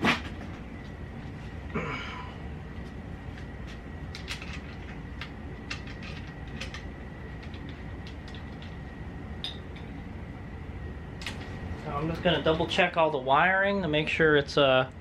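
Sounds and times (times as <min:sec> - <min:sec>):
faint hum: 0:00.0 - 0:15.0
bike parts clicking and tapping: 0:03.3 - 0:08.8.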